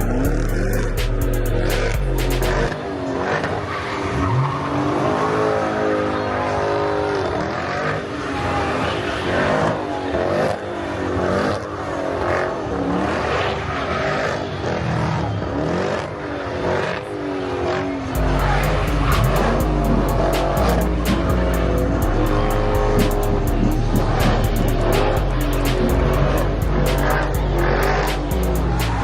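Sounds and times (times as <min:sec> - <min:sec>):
music with heavy bass beat: 0:00.0 - 0:02.8, 0:18.2 - 0:29.0
car engine revving: 0:00.0 - 0:29.0.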